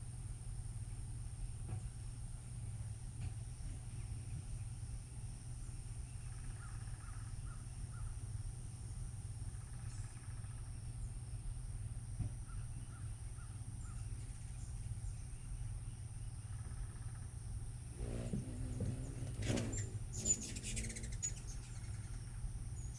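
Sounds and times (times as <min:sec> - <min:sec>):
faint bird calls: 0:06.1 - 0:08.2, 0:18.0 - 0:22.9.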